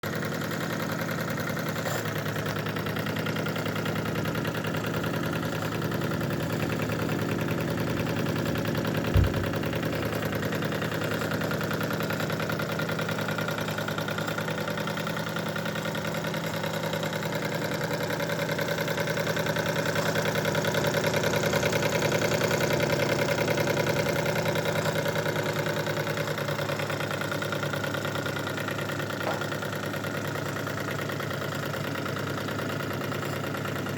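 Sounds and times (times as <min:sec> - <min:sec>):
model steam engine running: 0:00.1 - 0:33.9
low thump: 0:09.1 - 0:09.9.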